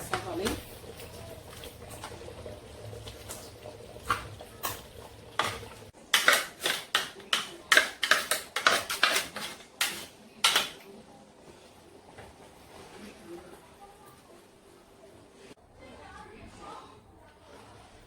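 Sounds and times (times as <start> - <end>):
spoon scraping a cooking pot: 5.4 - 10.7.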